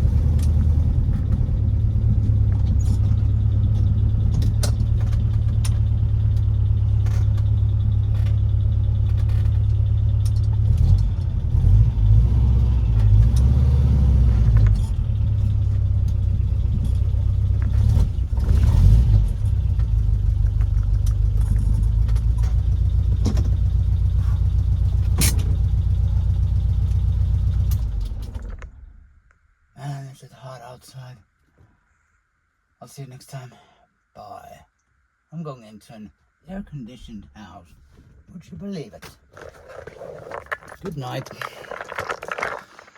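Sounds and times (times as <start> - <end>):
car engine idling and revving: 0.0 - 29.2.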